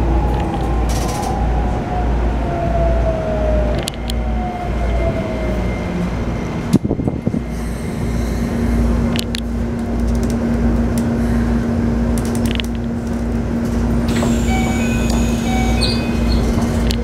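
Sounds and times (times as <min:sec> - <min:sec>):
train interior hum: 0:00.0 - 0:17.0
high whistling tones: 0:14.4 - 0:16.6.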